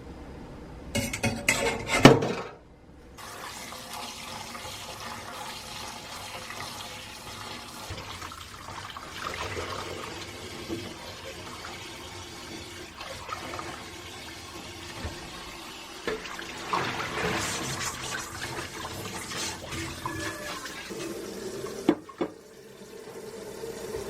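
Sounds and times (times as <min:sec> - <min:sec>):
tap running into a sink: 0:09.4 - 0:21.0, 0:21.6 - 0:22.5.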